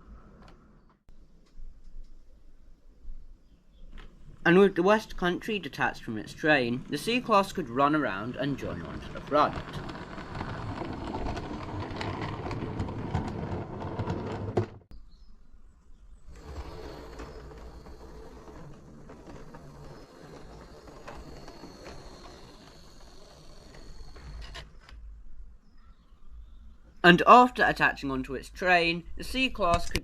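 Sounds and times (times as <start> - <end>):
model train clicking on track: 5.0 - 14.4, 16.4 - 24.6
model train running with high whine: 16.4 - 24.6.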